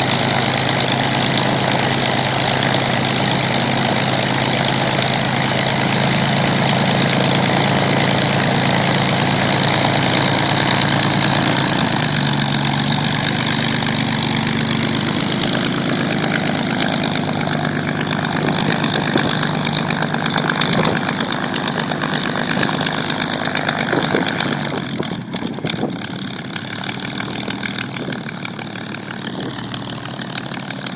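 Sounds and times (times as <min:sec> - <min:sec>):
aircraft piston engine idling: 0:00.0 - 0:30.9.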